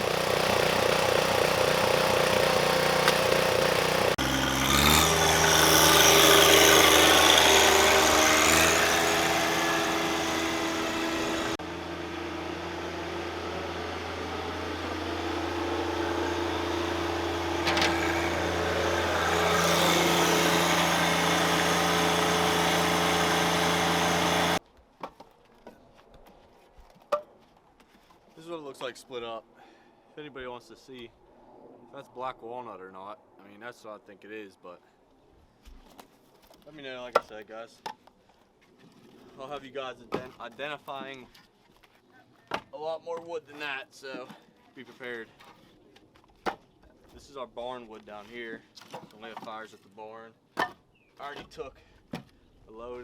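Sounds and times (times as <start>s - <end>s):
small gas engine running: 0.0s - 24.6s.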